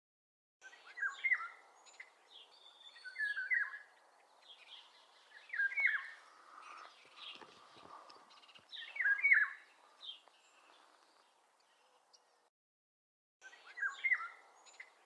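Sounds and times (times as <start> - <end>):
songbird whistling: 0.6 - 2.1, 2.7 - 3.9, 4.7 - 6.2, 8.8 - 9.6, 13.4 - 14.9
outdoor background noise: 0.6 - 12.5, 13.4 - 15.0.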